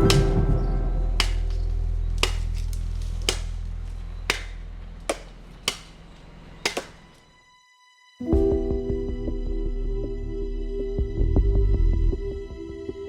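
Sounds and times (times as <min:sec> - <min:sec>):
sharp hammer blows: 0:00.0 - 0:03.6, 0:04.3 - 0:06.0, 0:06.6 - 0:07.1
low steady hum: 0:00.0 - 0:07.2.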